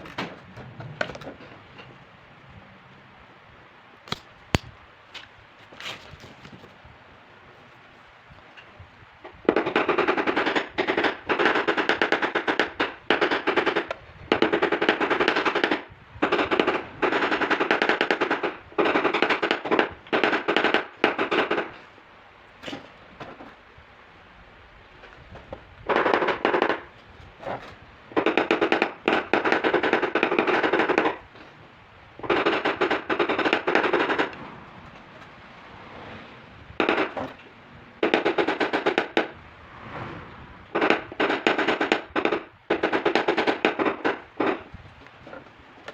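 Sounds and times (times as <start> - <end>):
rapid tapping on sheet metal: 32.2 - 34.4.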